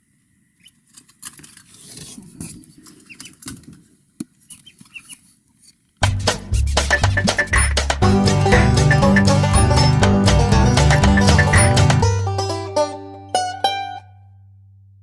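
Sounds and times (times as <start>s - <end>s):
birds scrabbling in a box: 1.4s - 3.8s, 4.4s - 5.3s
poults peeping: 3.0s - 3.5s, 4.5s - 5.3s, 6.3s - 12.0s
banjo music: 6.0s - 14.3s.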